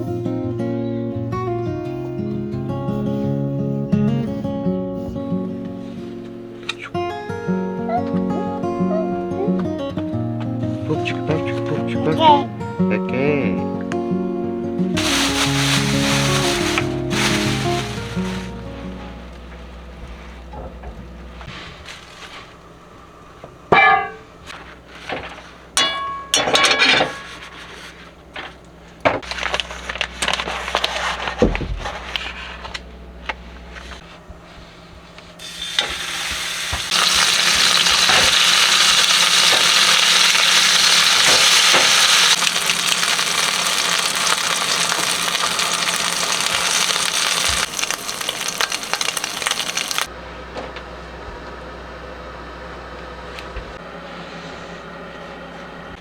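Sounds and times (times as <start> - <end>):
food sizzling hiss: 15.0 - 19.2, 35.4 - 50.1
dishes and utensils clinking: 23.7 - 24.3, 25.8 - 27.6.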